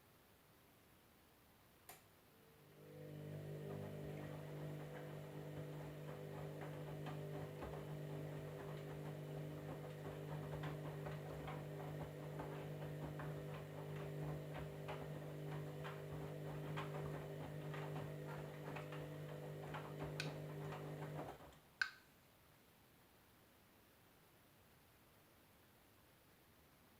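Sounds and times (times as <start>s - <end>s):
washing machine humming: 2.4s - 21.6s.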